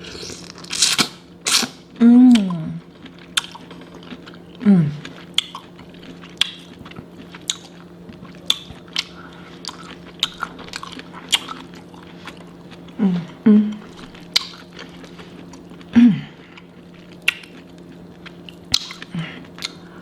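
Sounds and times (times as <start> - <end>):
person chewing with wet smacks: 0.2 - 20.0
short voiced hum: 4.6 - 5.1, 13.0 - 13.9, 15.9 - 16.5.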